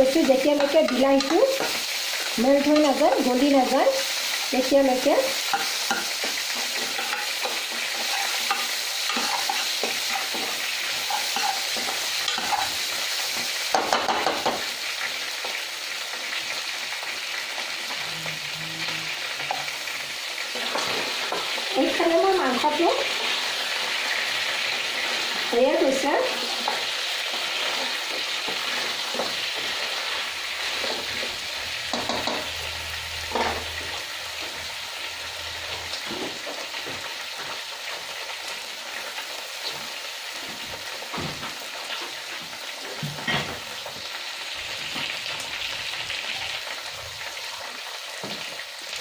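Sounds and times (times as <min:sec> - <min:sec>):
food sizzling in oil: 0:00.0 - 0:49.0
spatula scraping a pan: 0:05.4 - 0:14.0.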